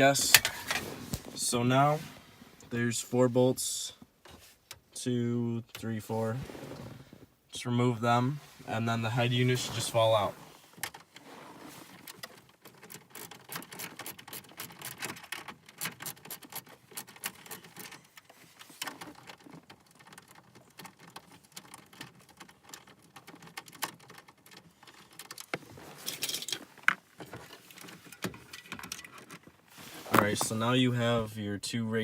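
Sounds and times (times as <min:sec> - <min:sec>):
hand tool clicking and rattling: 0:12.6 - 0:27.0.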